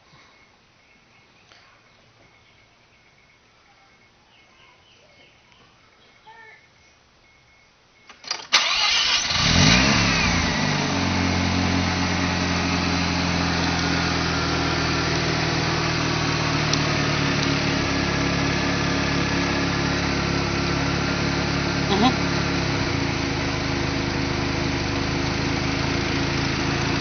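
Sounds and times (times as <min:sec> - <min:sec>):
rotary engine starting and idling: 0:08.1 - 0:27.0.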